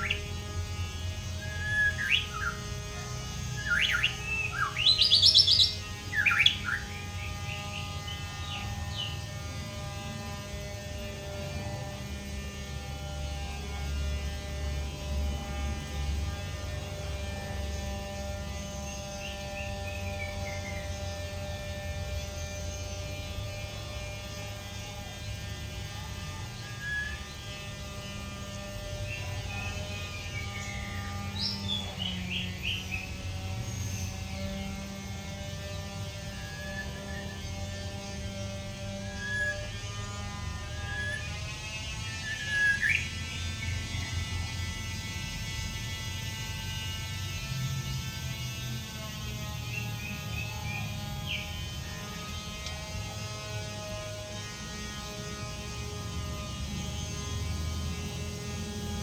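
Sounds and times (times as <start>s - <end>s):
bird chirps and whistles: 0.0s - 0.4s, 1.4s - 2.8s, 3.4s - 9.2s, 26.1s - 33.1s, 36.1s - 43.8s
steady hum: 0.0s - 59.0s.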